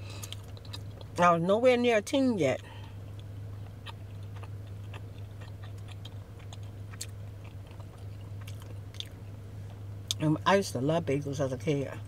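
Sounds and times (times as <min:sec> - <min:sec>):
steady low hum: 0:00.0 - 0:12.0
chewing with mouth clicks: 0:00.2 - 0:01.2, 0:02.8 - 0:10.2.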